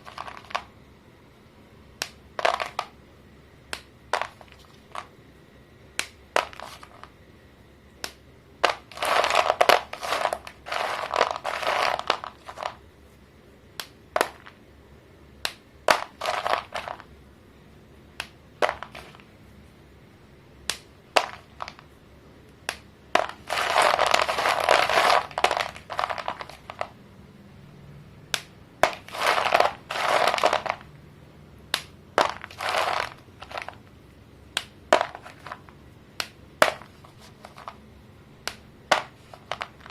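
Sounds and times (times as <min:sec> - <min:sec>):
chalk snapping: 0:06.0 - 0:07.1, 0:13.8 - 0:14.6, 0:15.4 - 0:17.0, 0:20.7 - 0:21.8, 0:31.7 - 0:33.7, 0:38.4 - 0:39.9
chalk crunching: 0:08.6 - 0:12.8, 0:15.9 - 0:17.0, 0:23.2 - 0:26.9, 0:28.8 - 0:30.9, 0:32.2 - 0:33.8.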